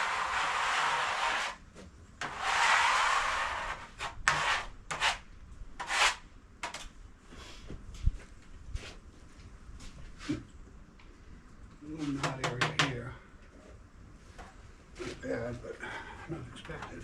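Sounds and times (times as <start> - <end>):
scraping strokes on wood: 0.0 - 1.6, 2.2 - 5.2, 5.8 - 6.2.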